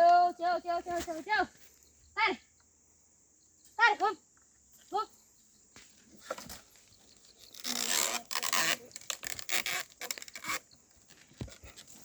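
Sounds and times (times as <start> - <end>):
rustling and scraping: 5.7 - 12.0.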